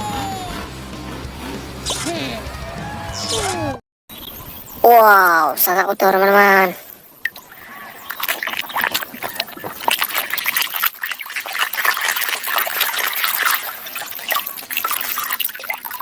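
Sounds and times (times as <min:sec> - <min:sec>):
water splashing and trickling: 0:04.7 - 0:16.0.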